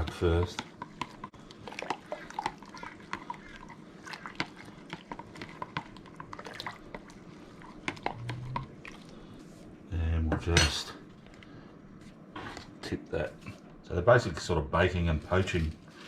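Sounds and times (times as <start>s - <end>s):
liquid sloshing: 0.0s - 9.7s.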